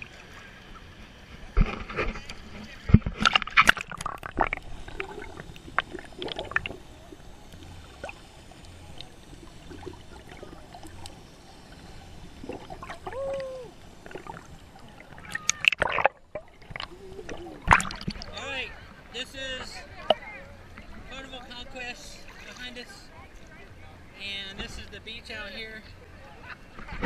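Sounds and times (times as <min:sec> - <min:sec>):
sea water sloshing and lapping: 0:00.0 - 0:23.6
small splashes and clicks: 0:01.3 - 0:06.8, 0:07.5 - 0:11.2, 0:12.4 - 0:18.4.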